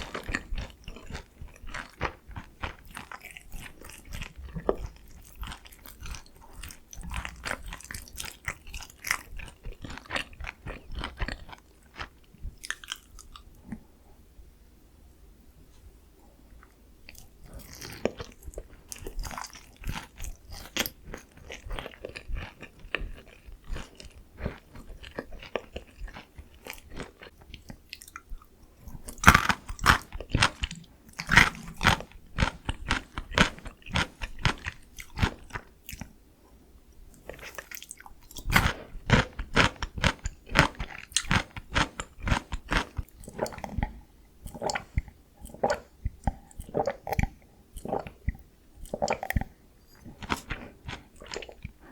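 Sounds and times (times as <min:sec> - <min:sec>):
crunching and chewing fried chicken: 0:00.0 - 0:13.8, 0:16.6 - 0:36.2, 0:37.1 - 0:51.9.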